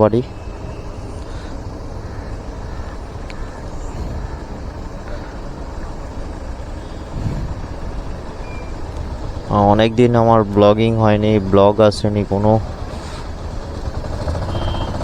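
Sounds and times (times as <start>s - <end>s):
car driving road noise: 0.0s - 15.0s.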